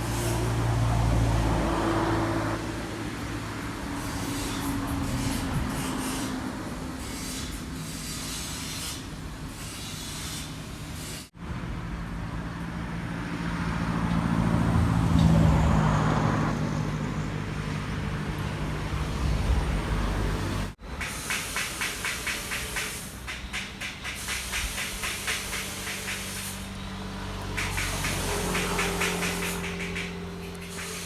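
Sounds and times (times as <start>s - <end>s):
vehicle engine passing by: 0.0s - 6.8s, 11.4s - 20.8s, 25.7s - 31.0s.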